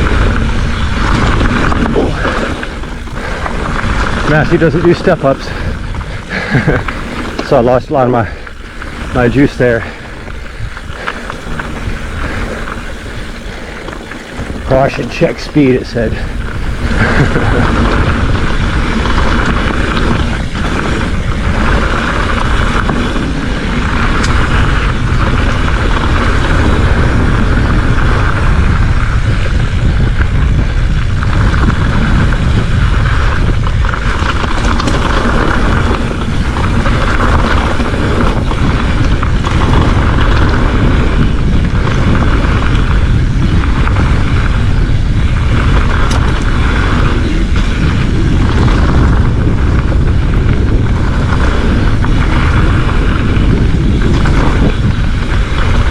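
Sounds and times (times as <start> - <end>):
tyres rumbling over dirt: 0.0 - 55.9
wind buffeting microphone: 0.0 - 55.9.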